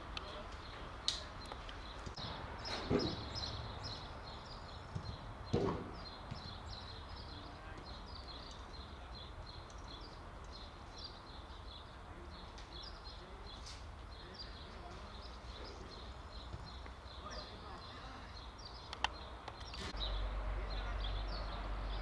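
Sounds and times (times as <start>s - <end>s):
small birds chirping: 0.0s - 22.0s
sharp thump: 4.9s - 6.5s.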